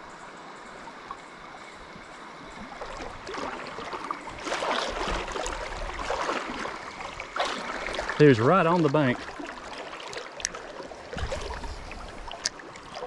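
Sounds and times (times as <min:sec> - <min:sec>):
water sloshing splashes: 0:02.8 - 0:13.0
river water rushing: 0:11.0 - 0:13.0
low rumble: 0:11.2 - 0:12.5.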